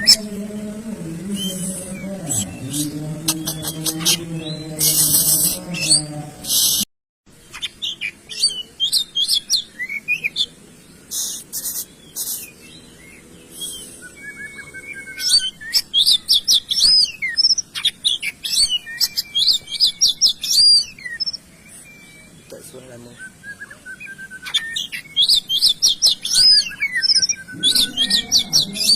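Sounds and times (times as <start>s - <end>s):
songbird chirps and whistles: 11.1s - 28.9s.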